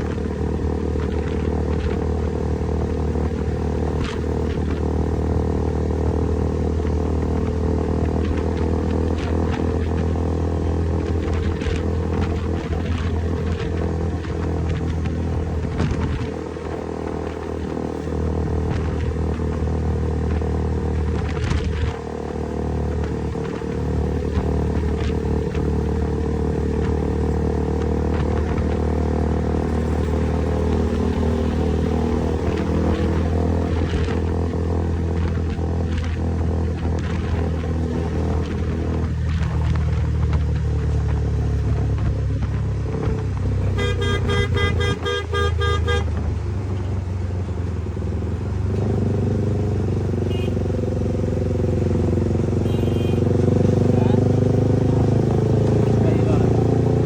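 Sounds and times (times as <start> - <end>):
motorcycle engine drone: 0.0 - 57.0
vehicle horn tooting: 43.7 - 46.2, 50.2 - 50.6, 52.6 - 53.4.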